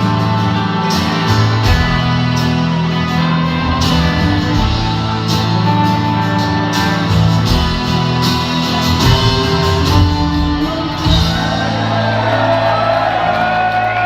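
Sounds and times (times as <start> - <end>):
live rock band playing: 0.0 - 14.0
crowd shouting: 9.0 - 14.0.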